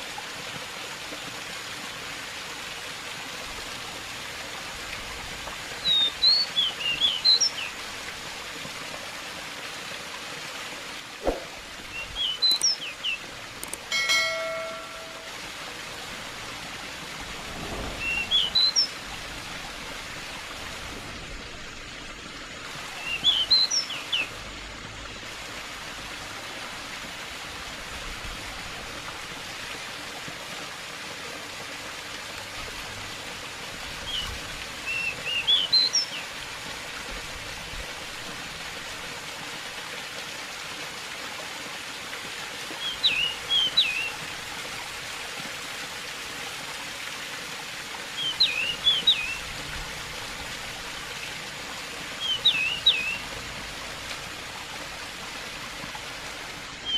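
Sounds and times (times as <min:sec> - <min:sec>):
stream running water: 0:00.0 - 0:56.9
bird chirping: 0:52.2 - 0:53.2.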